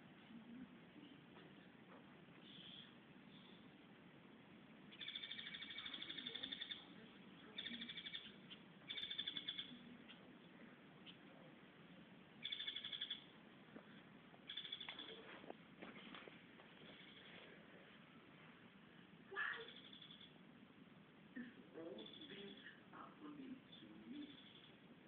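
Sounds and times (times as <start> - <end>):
bird rattling trills: 4.9 - 6.9, 7.6 - 9.7, 12.4 - 13.3, 14.5 - 15.2.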